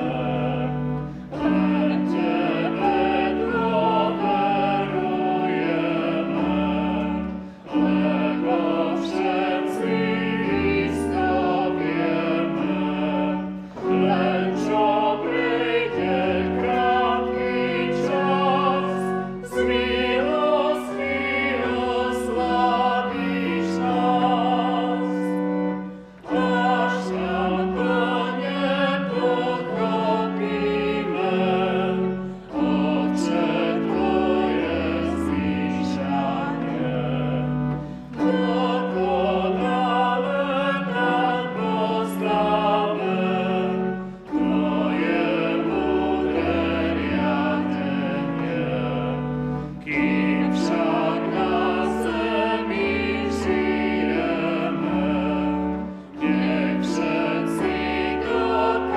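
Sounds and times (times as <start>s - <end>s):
voices singing: 0.0s - 25.6s, 26.2s - 58.9s
organ playing a hymn: 0.0s - 58.9s.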